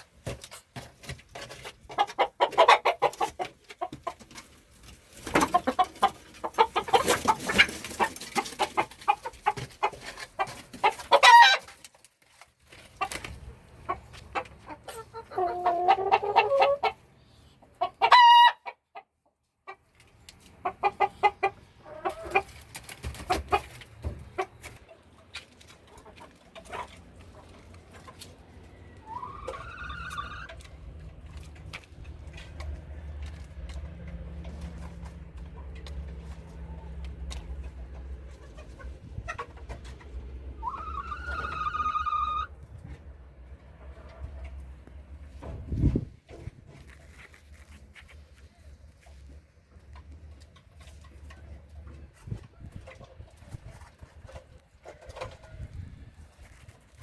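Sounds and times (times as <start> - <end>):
chickens clucking: 0.0 - 47.2, 48.1 - 57.0
chicken squawk: 10.8 - 11.7, 14.8 - 17.0, 17.9 - 18.8, 29.0 - 30.6, 40.6 - 42.5.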